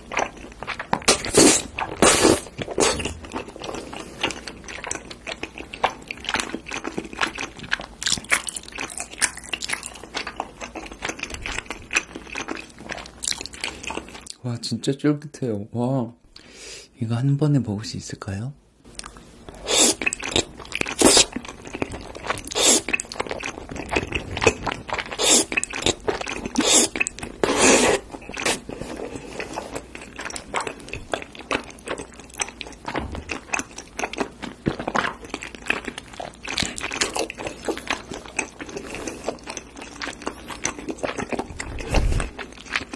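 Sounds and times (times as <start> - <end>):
slurping: 0.0 - 7.6, 19.5 - 30.9
wet chewing: 0.0 - 14.4, 18.9 - 42.9.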